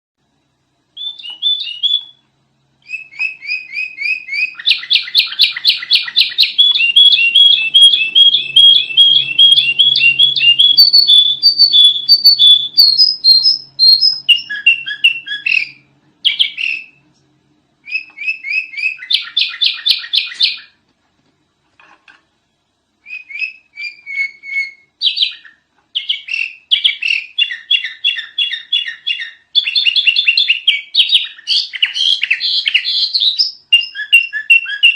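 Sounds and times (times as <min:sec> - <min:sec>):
bulbul singing high chirps: 0:02.8 - 0:17.0.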